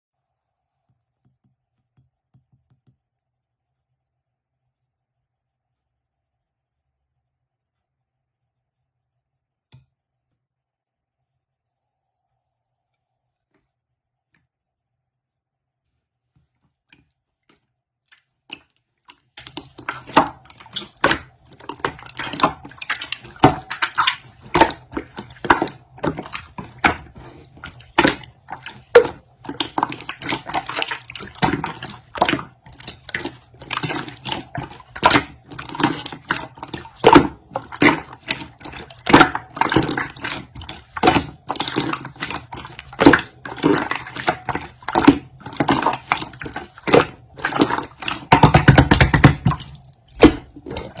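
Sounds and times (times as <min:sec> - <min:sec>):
slime squelching and popping: 0:17.5 - 0:51.0.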